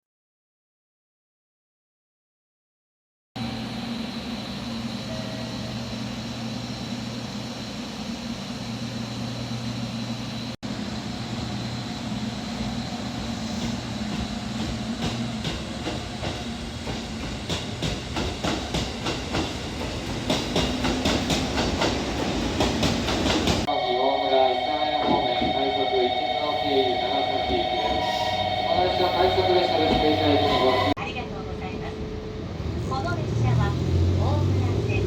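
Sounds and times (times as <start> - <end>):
train running on rails: 3.4 - 35.0.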